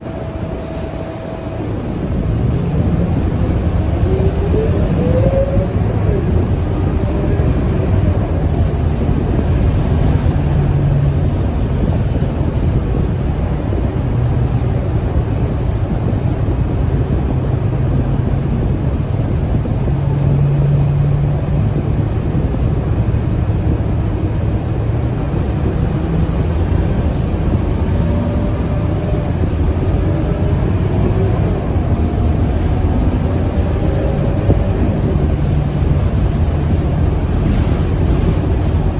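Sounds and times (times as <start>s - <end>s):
bus engine drone: 0.0s - 38.9s
road noise: 0.0s - 38.9s.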